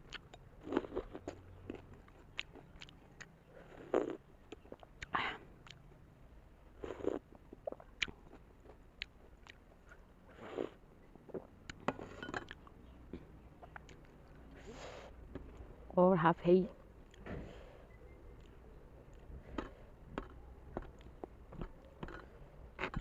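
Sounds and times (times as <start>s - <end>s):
chewing with wet mouth smacks: 0.0s - 5.9s, 6.8s - 10.1s, 12.5s - 14.4s, 18.3s - 22.2s.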